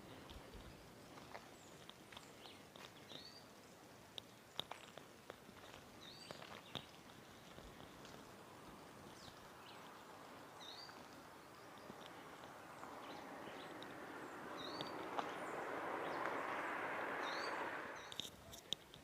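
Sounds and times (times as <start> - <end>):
birds chirping: 5.6 - 18.3
steady background hiss: 7.0 - 18.2.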